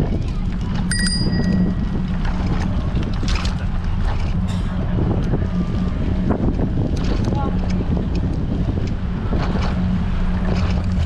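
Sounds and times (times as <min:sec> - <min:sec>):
wind buffeting microphone: 0:00.0 - 0:11.0
brief high ring: 0:00.9 - 0:01.8.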